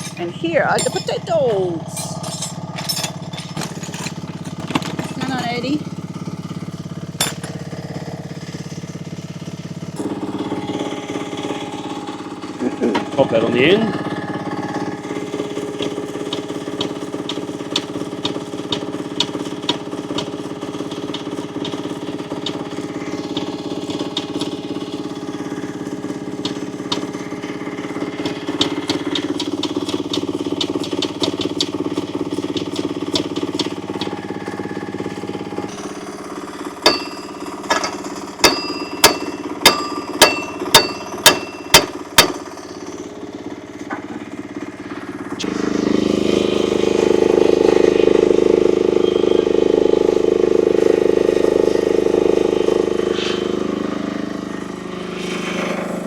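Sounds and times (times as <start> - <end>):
ringing metal strikes: 0.0 - 5.8, 7.2 - 8.2, 36.8 - 43.1
excavator engine idling: 0.0 - 56.0.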